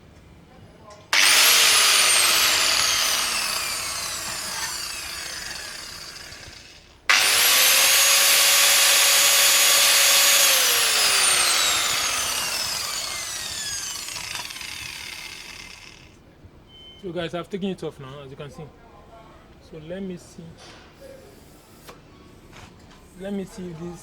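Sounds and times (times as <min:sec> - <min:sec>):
power cutting tool whining: 0:01.1 - 0:16.2.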